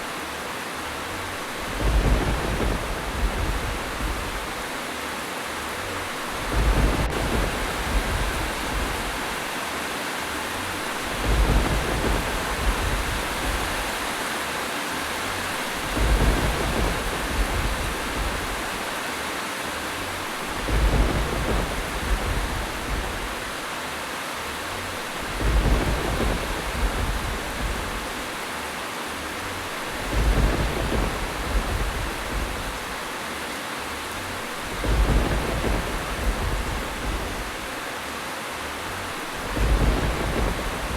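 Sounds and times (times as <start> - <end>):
rain hiss: 0.0 - 40.9
low thunder rumble: 1.3 - 4.9, 5.7 - 9.6, 10.4 - 14.2, 15.2 - 19.1, 19.8 - 23.8, 24.6 - 28.4, 29.6 - 33.2, 34.1 - 37.9, 38.8 - 40.9.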